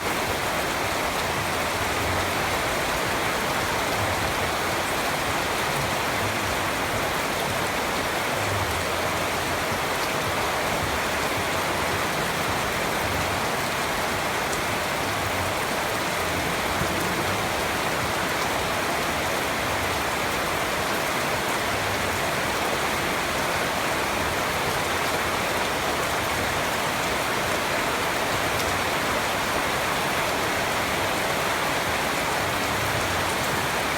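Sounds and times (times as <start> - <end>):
rain pattering on surfaces: 0.0 - 33.9.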